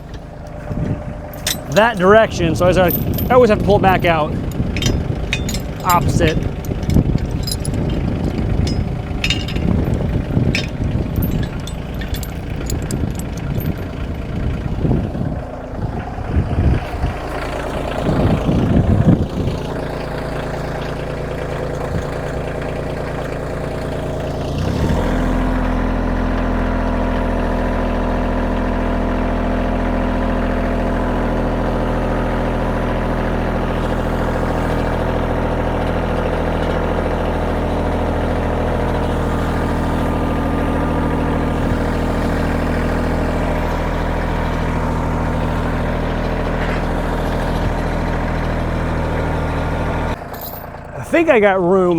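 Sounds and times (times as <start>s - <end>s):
uneven clattering: 0.0s - 14.4s
tractor diesel engine running: 0.0s - 51.9s.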